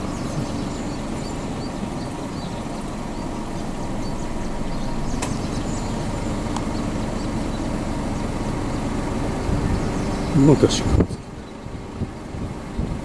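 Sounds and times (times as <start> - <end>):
low outdoor rumble: 0.0 - 13.0
small click: 5.2 - 5.4.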